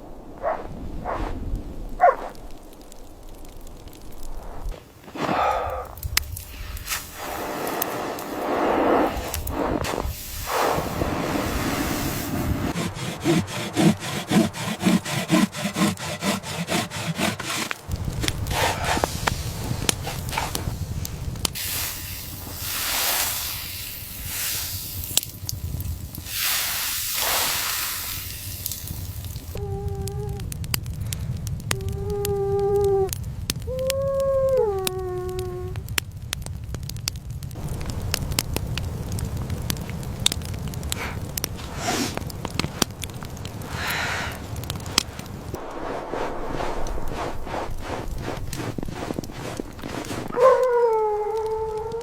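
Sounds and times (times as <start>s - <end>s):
crunching or clicking strokes: 0.4s - 36.0s, 37.6s - 52.0s
rushing hissing noise: 4.0s - 14.3s, 17.9s - 29.6s, 45.4s - 50.3s
dogs howling: 33.7s - 35.8s, 50.3s - 52.0s.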